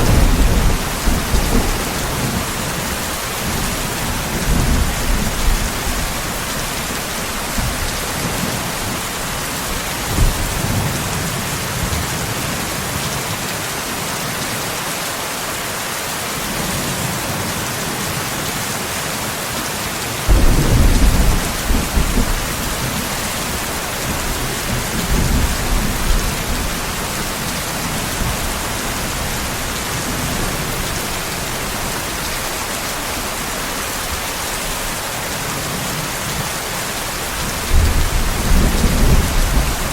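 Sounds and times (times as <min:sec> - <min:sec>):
thunder rolling: 0:00.0 - 0:11.2, 0:20.3 - 0:32.4, 0:37.5 - 0:39.9
steady rain: 0:00.0 - 0:39.9.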